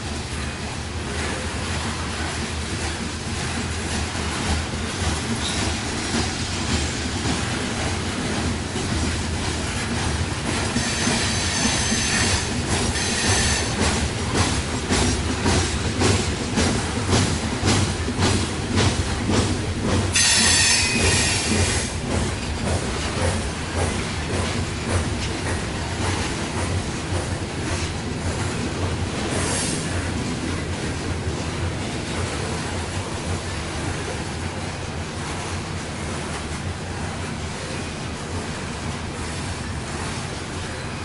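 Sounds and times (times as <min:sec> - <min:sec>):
train cars rumbling past: 0:00.0 - 0:41.0
wheels clicking over rail joints: 0:00.0 - 0:41.0
high wheel squeal: 0:10.8 - 0:13.8, 0:20.1 - 0:21.6.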